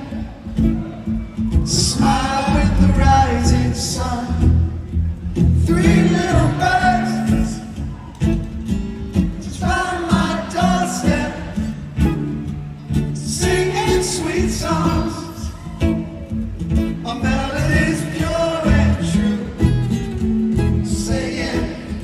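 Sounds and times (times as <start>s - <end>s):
bass line: 0.0s - 22.0s
person singing: 1.6s - 4.7s, 5.6s - 7.8s, 13.2s - 16.0s.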